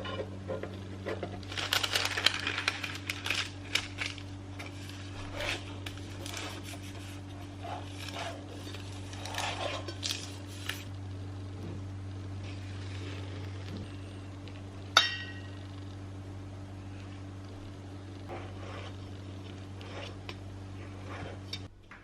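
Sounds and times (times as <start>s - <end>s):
low electrical hum: 0.0s - 22.0s
rustling: 1.2s - 10.9s.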